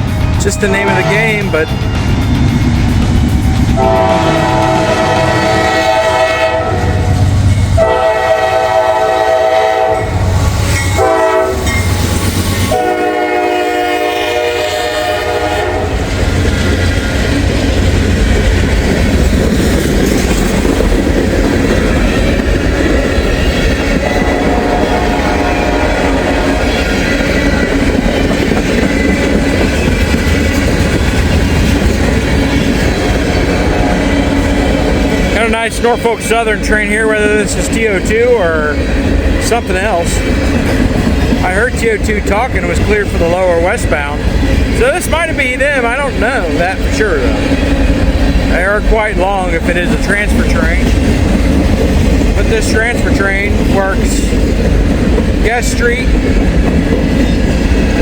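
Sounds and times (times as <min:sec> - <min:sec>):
train rumbling past: 0:00.0 - 0:58.0
train horn: 0:00.6 - 0:02.1, 0:03.7 - 0:11.8, 0:12.6 - 0:16.2, 0:24.0 - 0:27.5, 0:33.4 - 0:34.6
wheels clacking over rail joints: 0:15.6 - 0:38.2.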